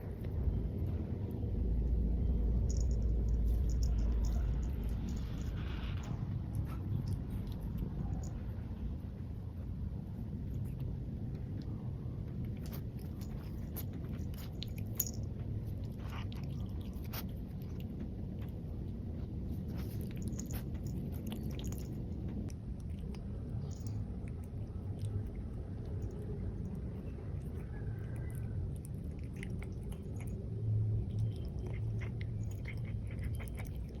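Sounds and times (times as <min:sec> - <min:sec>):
cat chewing and biting: 0:00.0 - 0:34.0
low background noise: 0:00.0 - 0:34.0.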